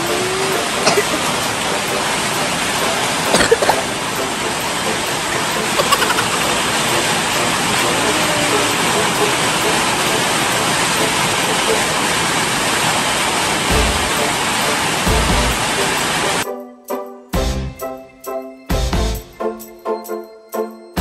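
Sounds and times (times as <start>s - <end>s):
heavy rain pouring: 0.0s - 16.4s.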